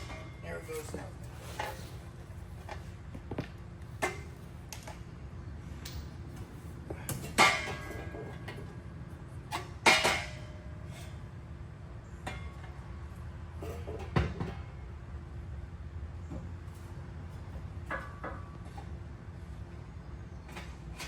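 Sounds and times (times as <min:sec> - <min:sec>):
metal clanks and knocks: 0:00.0 - 0:05.0, 0:05.9 - 0:08.8, 0:09.5 - 0:11.2, 0:12.1 - 0:14.8, 0:16.2 - 0:19.0.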